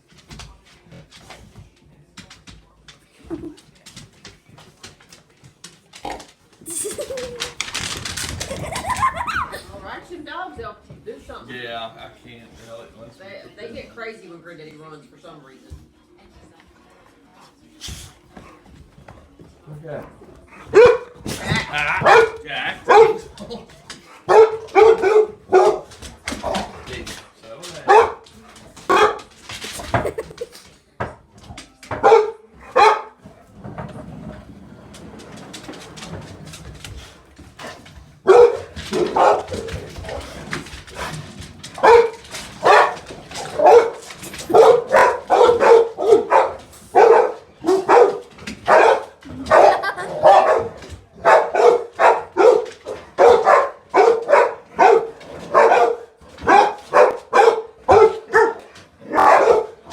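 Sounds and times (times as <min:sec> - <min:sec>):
dog barking excitedly: 0:07.0 - 0:09.7, 0:20.6 - 0:23.5, 0:24.1 - 0:26.8, 0:27.8 - 0:30.4, 0:31.9 - 0:33.2, 0:38.2 - 0:59.9.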